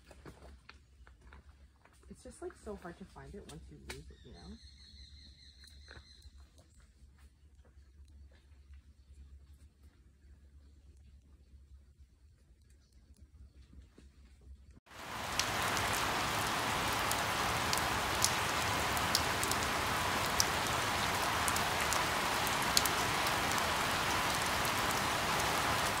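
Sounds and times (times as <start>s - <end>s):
rain falling on leaves: 14.9s - 26.0s
drops ticking: 15.0s - 26.0s.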